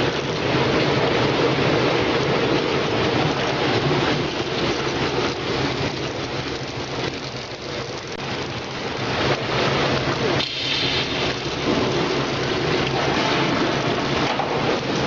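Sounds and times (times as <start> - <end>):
water hissing: 9.0 - 14.2.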